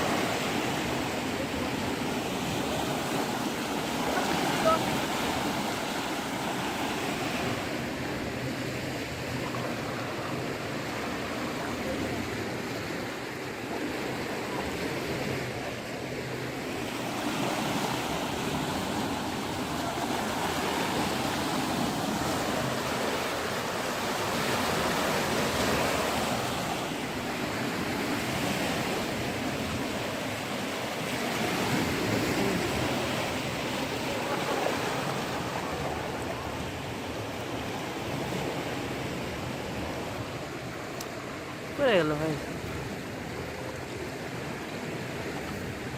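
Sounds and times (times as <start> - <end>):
floodwater rushing and splashing: 0.0 - 45.9.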